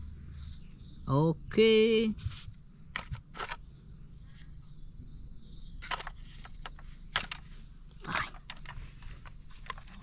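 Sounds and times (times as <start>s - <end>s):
plastic toys clicking and knocking: 5.8s - 10.0s.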